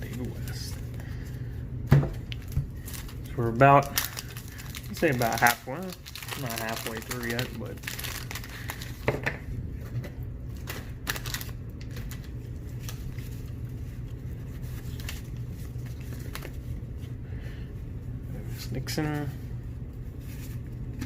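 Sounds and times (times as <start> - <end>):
low hum: 5.7 - 21.0.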